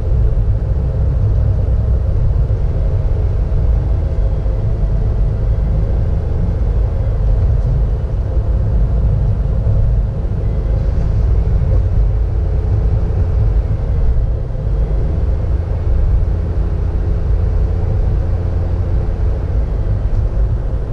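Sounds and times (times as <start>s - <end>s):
car engine and road noise: 0.0s - 20.9s.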